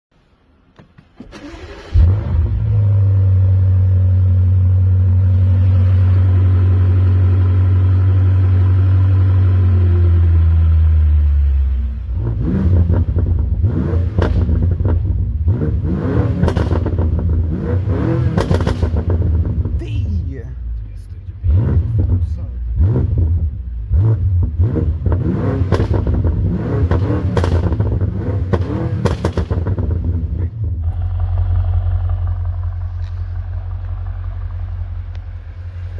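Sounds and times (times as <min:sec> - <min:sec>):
car engine starting and idling: 0:00.2 - 0:35.9
engine revving: 0:01.3 - 0:35.9
exhaust pops and bangs: 0:14.0 - 0:15.2, 0:16.3 - 0:17.5, 0:18.1 - 0:19.9, 0:24.4 - 0:31.5.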